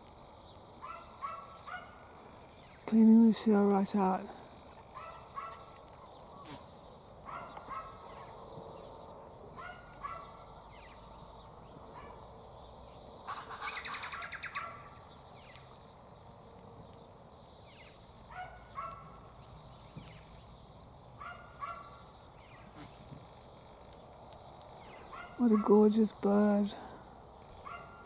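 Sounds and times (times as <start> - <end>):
birds calling: 0.0 - 28.0
harsh bird chattering: 13.3 - 14.8.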